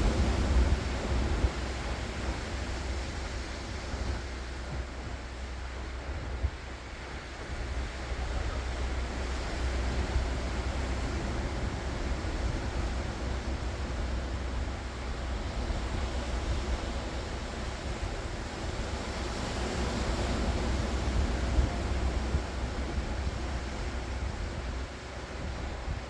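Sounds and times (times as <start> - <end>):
waves breaking on shore: 6.9 - 26.0.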